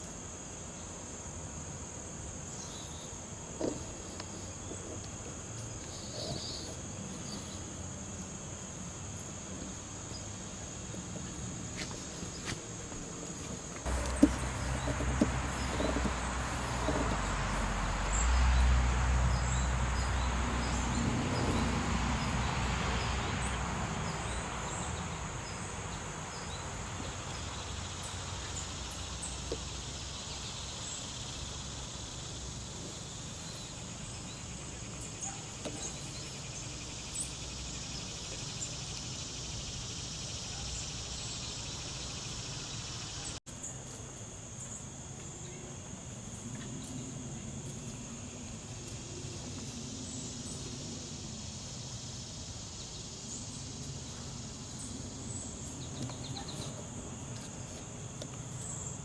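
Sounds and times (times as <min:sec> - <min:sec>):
insect chorus: 0:00.0 - 0:59.0
faint knocks: 0:13.9 - 0:17.6
passing vehicle rumble: 0:13.9 - 0:29.4.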